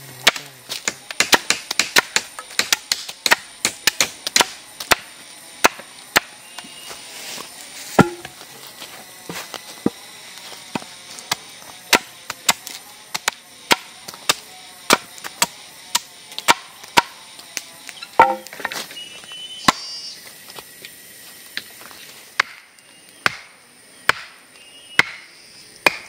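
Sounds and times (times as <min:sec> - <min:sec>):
wood being chopped: 0:00.2 - 0:06.7, 0:08.0 - 0:08.5, 0:09.3 - 0:10.0, 0:10.6 - 0:17.2, 0:18.1 - 0:18.9, 0:19.6 - 0:19.9, 0:22.4 - 0:26.0.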